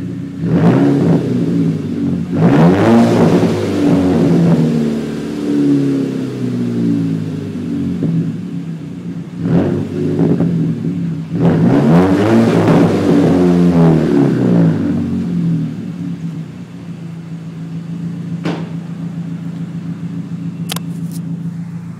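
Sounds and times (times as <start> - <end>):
car engine revving and idling: 0.0 - 21.9.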